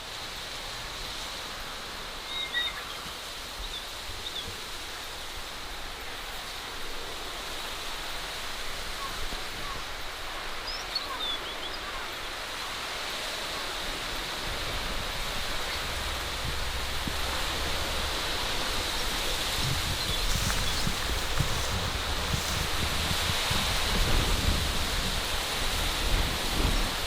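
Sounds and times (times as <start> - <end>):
low wind rumble on microphone: 14.3 - 27.0
steady rushing noise: 20.3 - 24.9.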